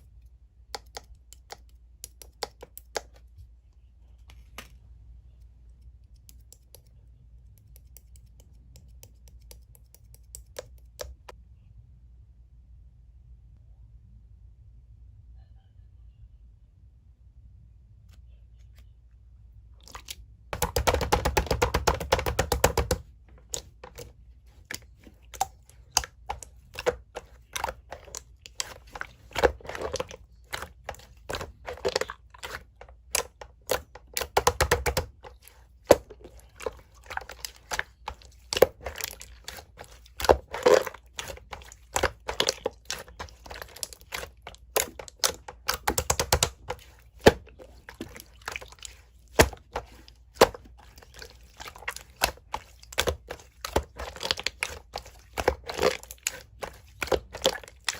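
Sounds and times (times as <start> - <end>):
slime handling noise: 19.8 - 57.9
slime clicking and popping: 24.8 - 35.2, 40.2 - 50.6.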